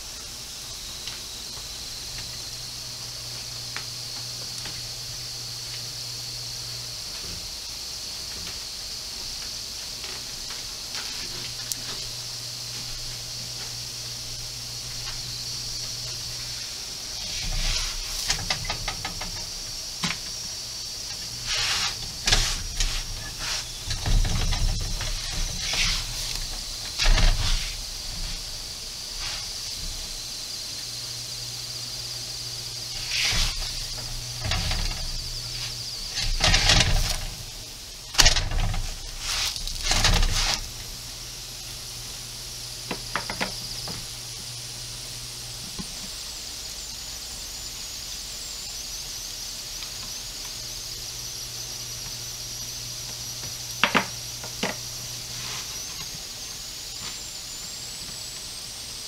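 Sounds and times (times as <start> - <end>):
flatbreads sizzling on a griddle: 0.0 - 59.0.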